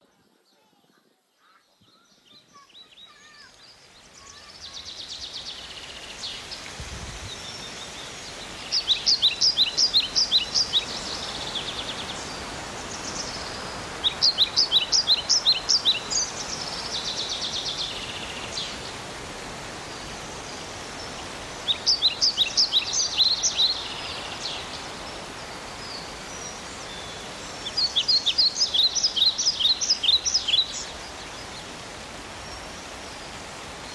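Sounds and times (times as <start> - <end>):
steady outdoor hiss: 0.0 - 33.9.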